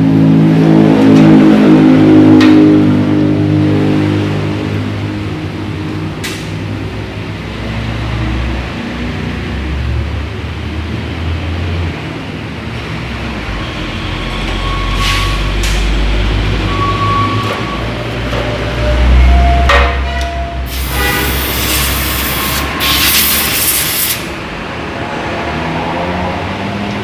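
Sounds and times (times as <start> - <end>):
loud hiss: 20.7 - 24.4.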